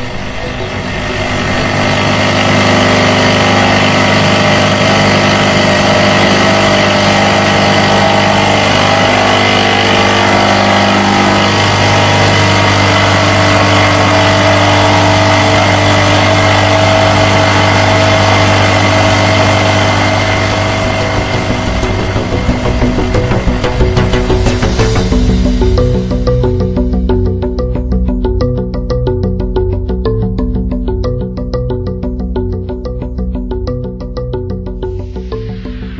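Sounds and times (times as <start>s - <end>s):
milling machine cutting steel: 0.0s - 28.0s.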